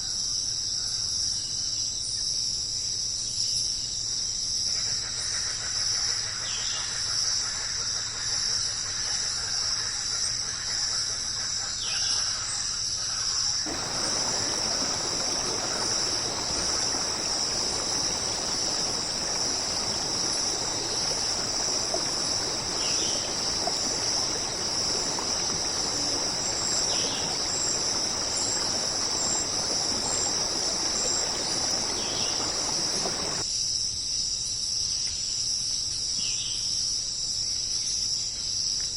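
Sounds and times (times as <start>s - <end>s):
insect chorus: 0.0s - 38.9s
running water: 13.7s - 33.4s.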